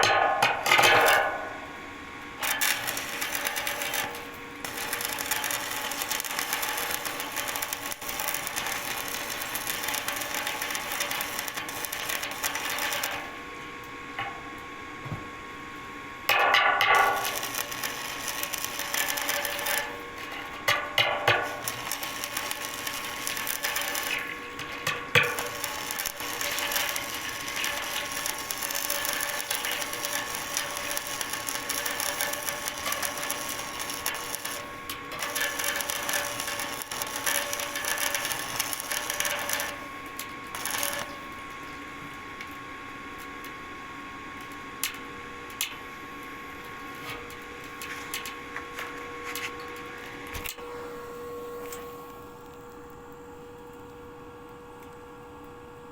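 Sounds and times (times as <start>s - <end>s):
construction machine running: 17.0s - 39.9s.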